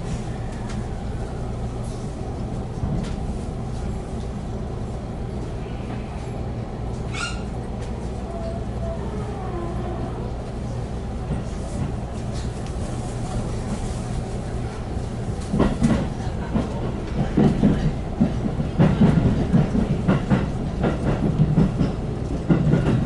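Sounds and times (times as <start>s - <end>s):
train car rumble and hum: 0.0s - 23.0s
short high squeak: 7.1s - 7.5s.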